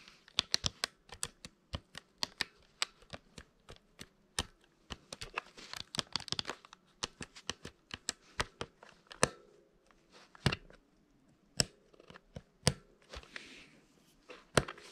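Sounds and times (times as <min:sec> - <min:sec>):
calculator keys clicking: 0:00.3 - 0:09.4.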